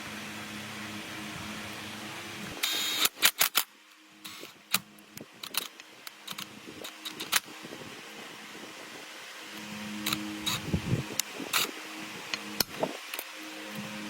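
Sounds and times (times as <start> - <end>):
steady motor hum: 0.0 - 3.1, 4.0 - 14.0
short hiss: 2.6 - 4.6.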